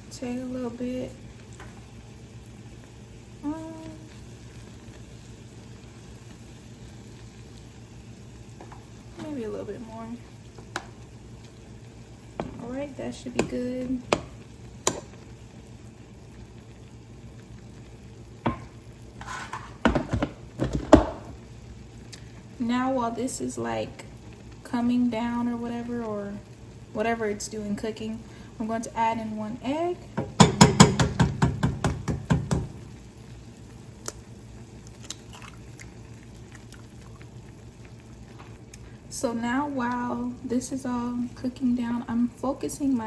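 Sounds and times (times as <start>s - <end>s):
soup simmering: 0.4s - 43.0s
utensil knocking against pan: 18.4s - 18.7s, 19.5s - 21.2s, 30.2s - 32.8s
utensil scraping pan: 19.2s - 20.3s.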